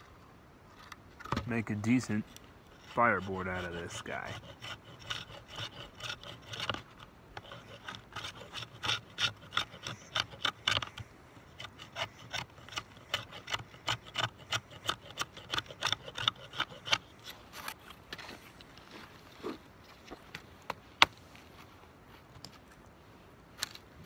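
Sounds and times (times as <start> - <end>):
knife scraping wood: 0.7 - 18.0.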